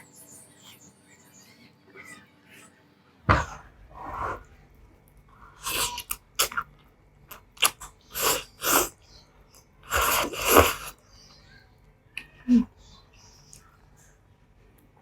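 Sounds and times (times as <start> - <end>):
wet mouth clicks: 5.6 - 6.7
noodles being slurped: 7.3 - 9.0, 9.9 - 11.0.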